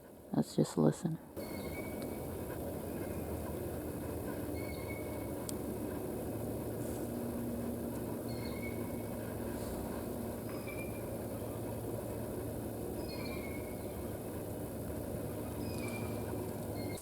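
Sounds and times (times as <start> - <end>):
steady low rumble: 1.3 - 17.0
faint high bird chirps: 1.4 - 2.2, 13.0 - 14.1, 15.6 - 17.0.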